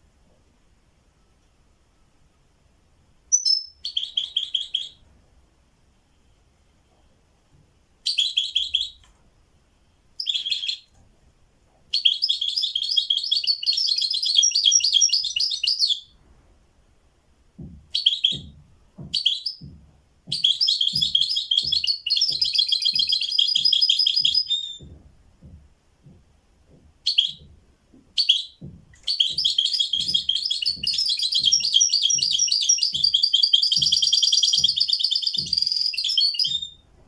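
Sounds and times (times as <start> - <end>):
songbird trilling: 3.3 - 5.0, 10.2 - 10.9, 12.0 - 16.1, 20.4 - 24.9, 28.2 - 36.8
soft low tapping: 17.5 - 37.0.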